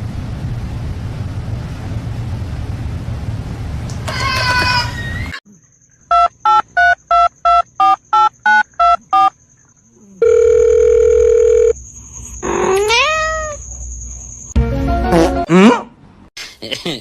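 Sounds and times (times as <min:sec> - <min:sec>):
telephone keypad dialing beeps: 0:06.1 - 0:09.3
steady telephone tone: 0:10.2 - 0:11.8
cat meowing: 0:12.7 - 0:13.6.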